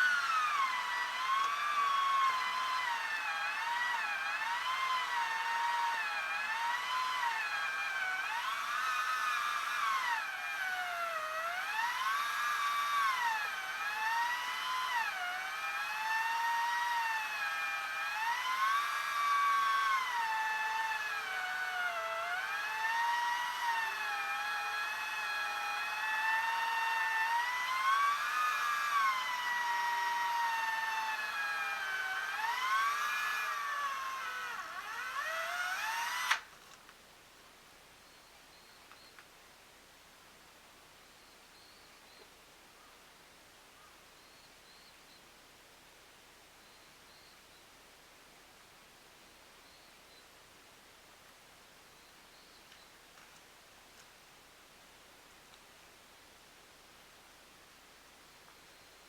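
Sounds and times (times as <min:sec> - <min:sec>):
chainsaw cutting logs: 0:00.0 - 0:36.9.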